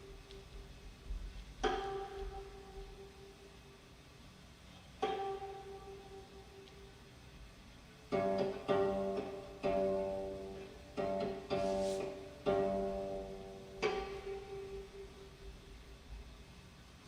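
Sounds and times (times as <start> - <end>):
plucked string notes: 1.6 - 3.4, 5.0 - 6.9, 8.1 - 15.7.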